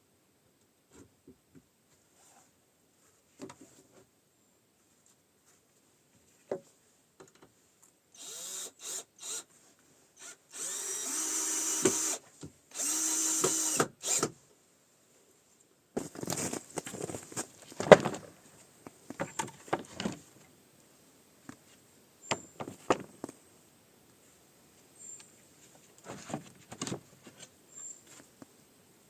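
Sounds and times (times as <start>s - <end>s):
power drill running: 8.2s - 9.5s, 10.2s - 14.3s.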